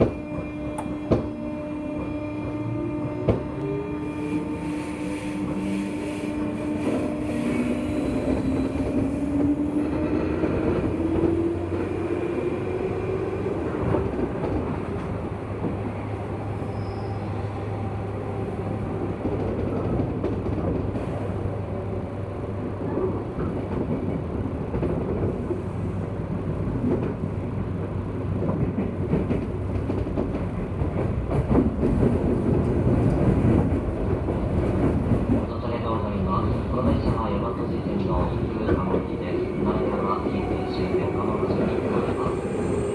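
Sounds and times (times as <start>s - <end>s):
rail clicks: 0.0s - 1.4s
train motor whine: 0.0s - 15.3s
wheel and rail rumble: 0.0s - 42.9s.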